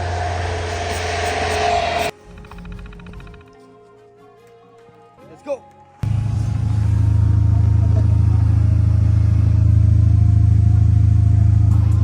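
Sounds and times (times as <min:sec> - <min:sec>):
car engine and road drone: 0:00.0 - 0:03.4, 0:06.0 - 0:12.0.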